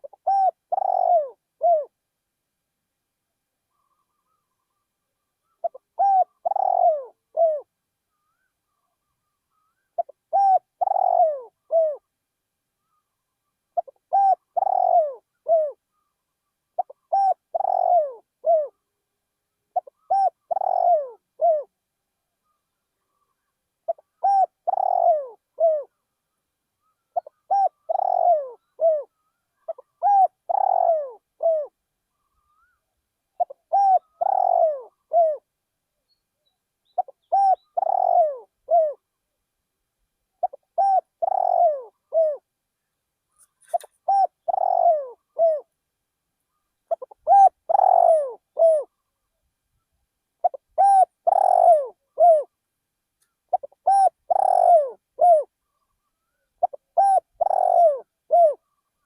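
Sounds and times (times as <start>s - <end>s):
small birds chirping: 0.0s - 1.3s, 12.8s - 18.9s, 19.8s - 21.1s, 22.4s - 26.1s, 26.8s - 35.4s, 36.0s - 38.9s, 40.4s - 45.6s, 46.4s - 49.4s, 50.4s - 52.4s, 53.2s - 59.0s
dove cooing: 0.0s - 2.0s, 5.5s - 7.7s, 8.3s - 12.1s, 13.8s - 16.0s, 16.8s - 18.8s, 19.7s - 21.7s, 23.1s - 26.0s, 26.8s - 32.8s, 33.4s - 35.5s, 37.0s - 39.1s, 40.4s - 42.5s, 43.4s - 45.7s, 46.5s - 49.0s, 50.4s - 52.6s, 53.5s - 59.0s.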